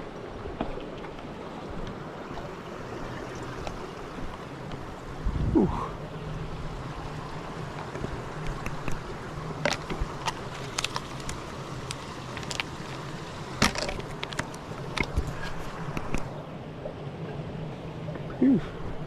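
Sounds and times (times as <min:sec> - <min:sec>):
wind rumble on microphone: 0:04.0 - 0:16.5.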